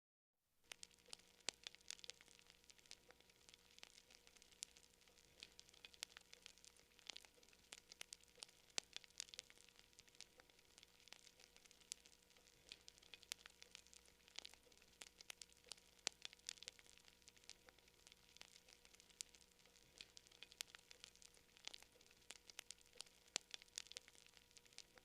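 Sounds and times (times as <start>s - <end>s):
faint fire hiss: 0.6s - 25.0s
campfire crackling: 0.7s - 25.0s.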